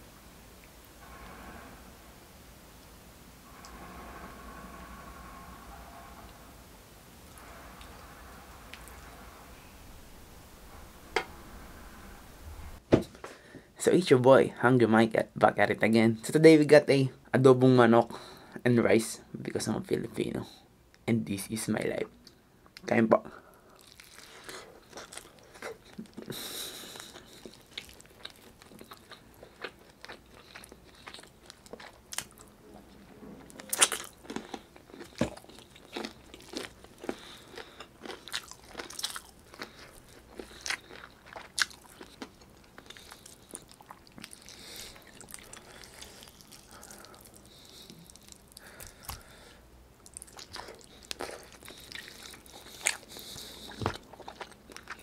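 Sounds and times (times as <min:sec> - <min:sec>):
wet chewing and lip smacking: 0:23.8 - 0:32.5, 0:33.6 - 0:49.3, 0:50.0 - 0:55.0.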